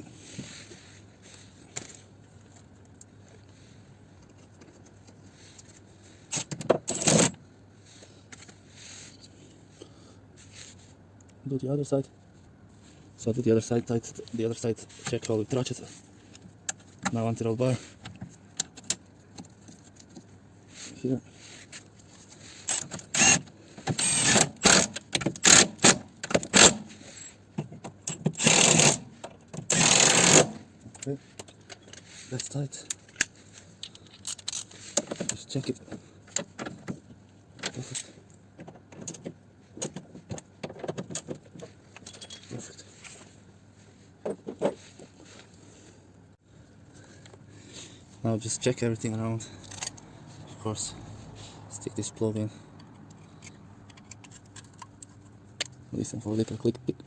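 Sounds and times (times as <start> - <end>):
ratchet wrench clicking: 22.7 - 26.8, 28.1 - 29.0, 29.7 - 30.6.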